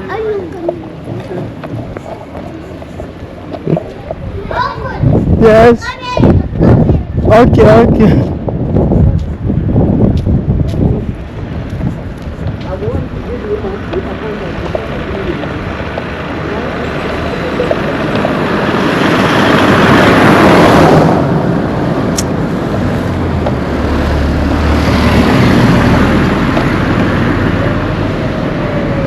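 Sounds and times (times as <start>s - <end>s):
road noise: 0.0s - 29.0s
vehicle passing close by: 9.6s - 29.0s.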